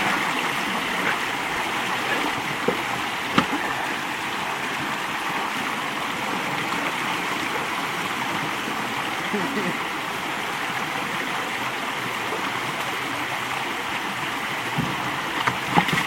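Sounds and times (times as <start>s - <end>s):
creek water rushing over dam: 0.0s - 16.0s
short knocks: 2.1s - 3.6s.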